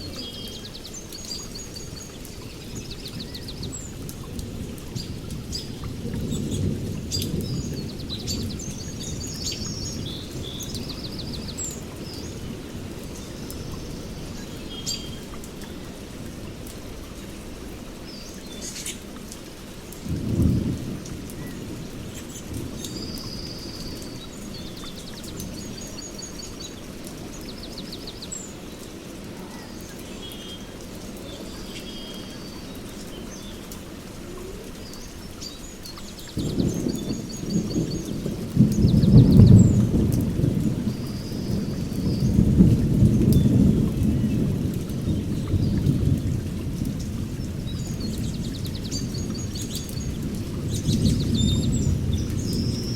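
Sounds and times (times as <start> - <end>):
steady rain: 0.0 - 52.9
low rolling thunder: 2.6 - 13.0, 20.0 - 25.8, 36.3 - 52.9
birds chirping and trilling: 34.7 - 39.9
loud thunder clap: 36.4 - 48.8.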